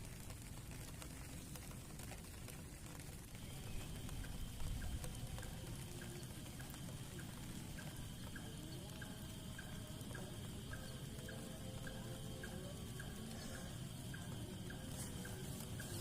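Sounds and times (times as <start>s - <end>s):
steady rain falling: 0.0s - 16.0s
faint high drone: 3.3s - 16.0s.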